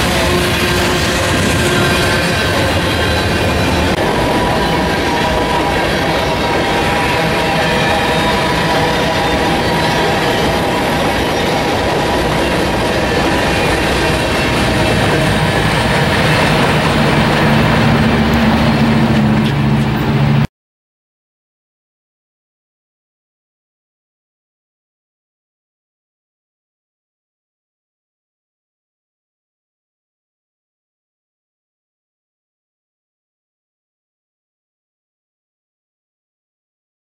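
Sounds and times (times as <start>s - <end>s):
freight train rumbling past: 0.0s - 20.5s
wheels squealing: 0.0s - 20.5s.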